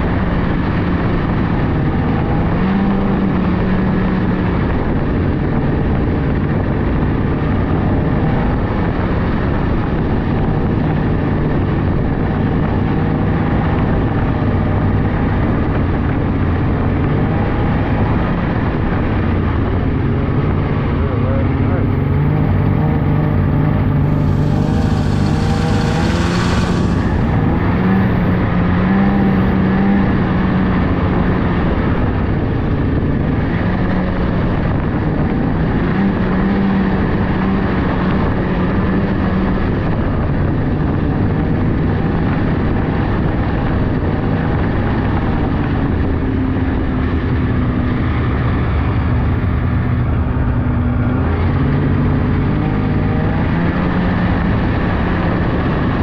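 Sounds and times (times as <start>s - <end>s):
snowmobile engine running: 0.0s - 56.0s
rushing hiss: 24.1s - 27.6s.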